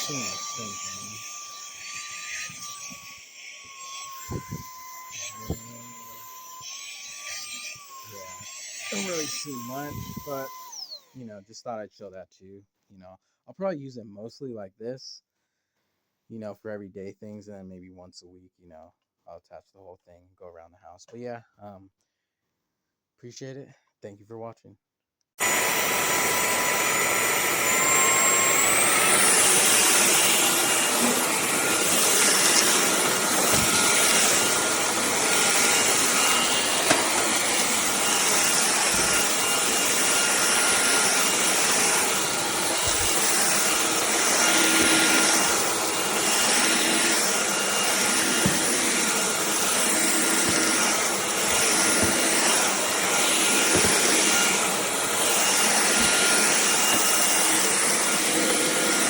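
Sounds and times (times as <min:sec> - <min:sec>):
vacuum cleaner motor whine: 0:00.0 - 0:11.2, 0:25.4 - 0:59.0.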